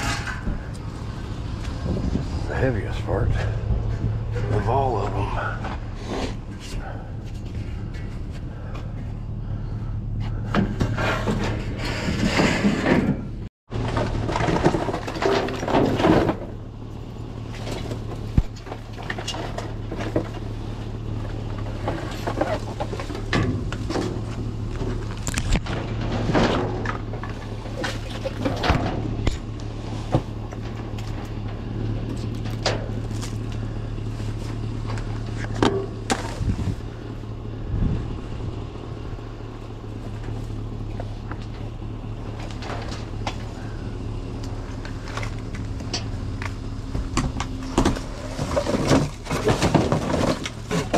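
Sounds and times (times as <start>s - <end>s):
vehicle engine humming: 0.0s - 50.9s
loud clatter: 10.4s - 16.6s
knocks and rustles: 17.5s - 33.7s, 44.5s - 50.9s.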